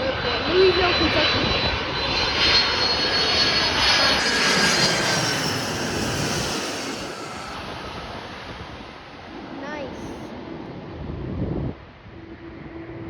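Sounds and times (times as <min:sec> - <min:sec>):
faint jet whine: 0:00.0 - 0:10.8
jet engines roaring past: 0:00.0 - 0:11.2.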